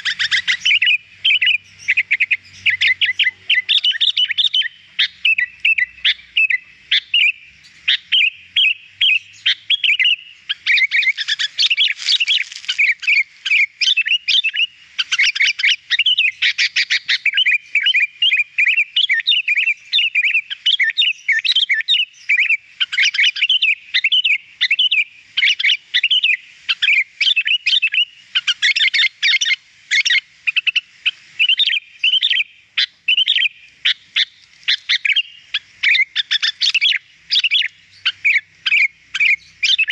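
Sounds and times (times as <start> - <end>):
bird song chirps and whistles: 0.0 - 39.9.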